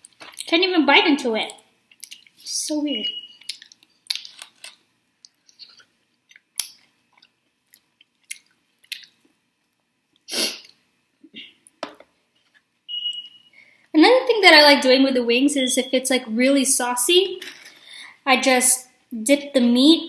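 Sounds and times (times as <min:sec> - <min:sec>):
chewing with wet mouth clicks: 0:01.9 - 0:02.4, 0:03.3 - 0:04.5, 0:05.2 - 0:09.3.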